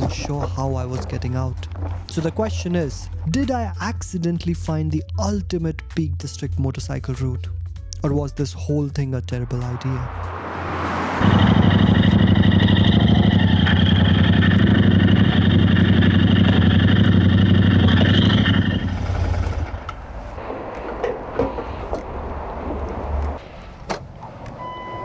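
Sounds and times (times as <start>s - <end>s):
motorcycle engine running: 11.2s - 19.9s.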